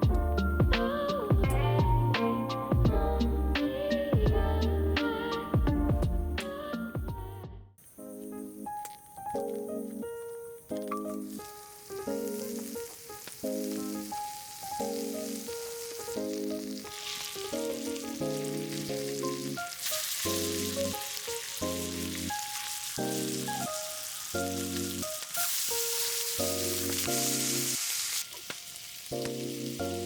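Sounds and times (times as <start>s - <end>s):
music of repeated chords: 0.0s - 22.4s
food sizzling: 8.2s - 30.0s.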